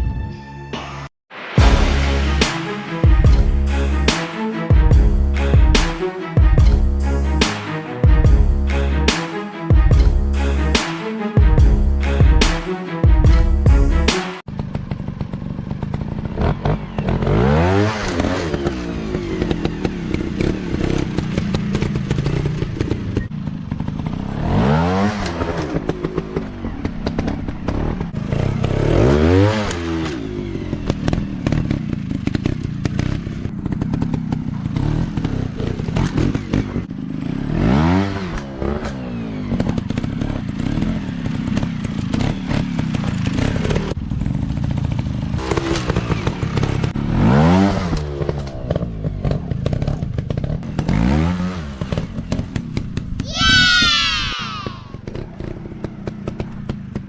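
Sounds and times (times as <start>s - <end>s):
dirt bike engines revving: 14.6s - 56.8s.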